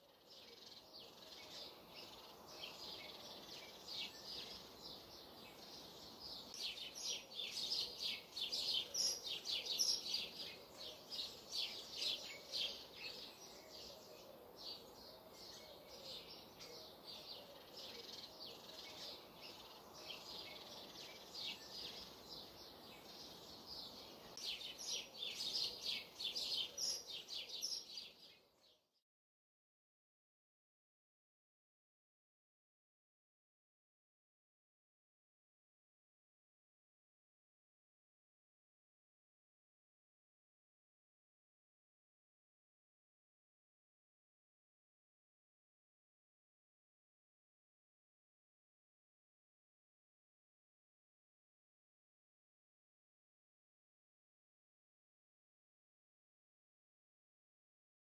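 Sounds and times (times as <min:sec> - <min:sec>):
faint background hiss: 0:00.0 - 0:28.8
birds chirping and calling: 0:00.1 - 0:28.4.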